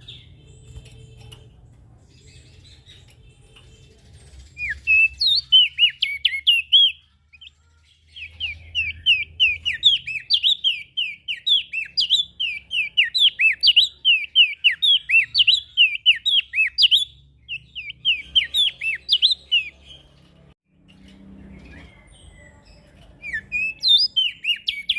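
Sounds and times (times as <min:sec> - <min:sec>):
songbird whistled notes: 0:04.5 - 0:07.6, 0:08.2 - 0:19.8, 0:23.2 - 0:24.9.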